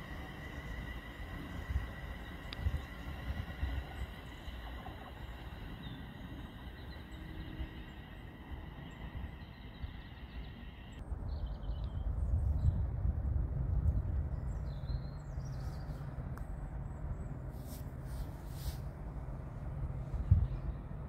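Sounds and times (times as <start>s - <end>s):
electric train whine: 0.0s - 11.0s
birds chirping: 0.0s - 12.8s
low train rumble: 0.0s - 21.0s
low wind rumble: 0.0s - 21.0s.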